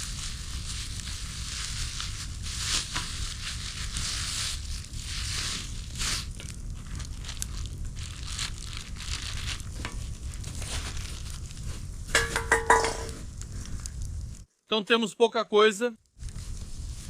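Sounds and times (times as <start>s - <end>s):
packaging crinkling and rustling: 0.0s - 11.8s.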